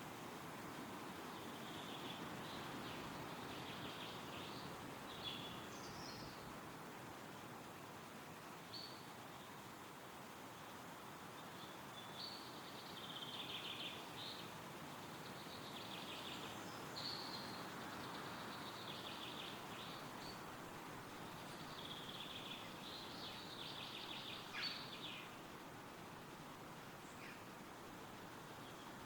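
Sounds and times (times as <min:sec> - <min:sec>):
wind rustling through trees: 0:00.0 - 0:29.0
songbird trilling: 0:21.6 - 0:25.3.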